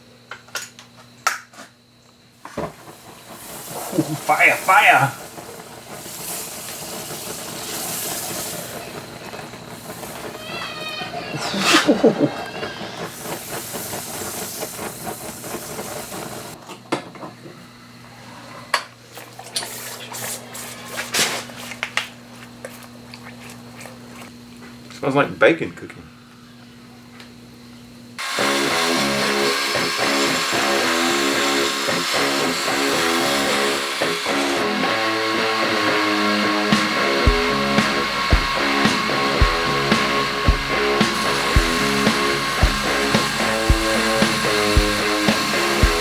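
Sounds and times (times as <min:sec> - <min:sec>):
hot blade sizzling in oil: 0:02.4 - 0:16.6, 0:28.2 - 0:46.0
guitar instrumental music: 0:28.2 - 0:46.0.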